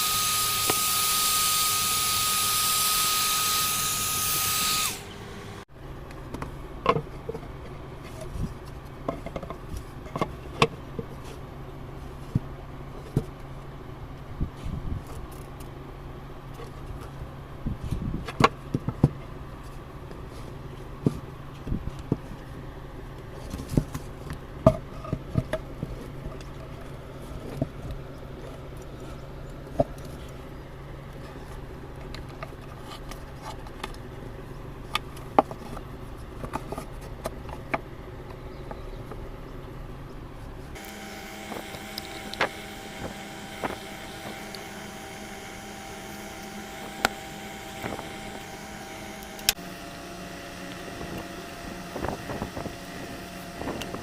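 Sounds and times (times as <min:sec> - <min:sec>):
steady hum: 0:00.0 - 0:54.0
higher steady drone: 0:40.8 - 0:54.0.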